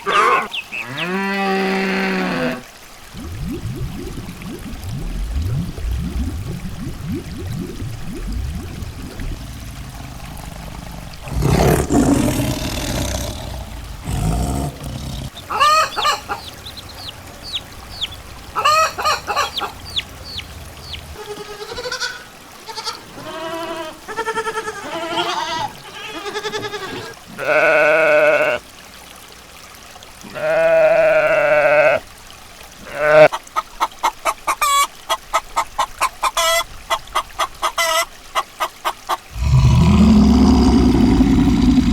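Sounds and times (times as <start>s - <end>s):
long steady animal calls: 8.6s - 22.2s
noisy animal call burst: 9.9s - 22.2s
animal chirping calls: 11.3s - 21.2s.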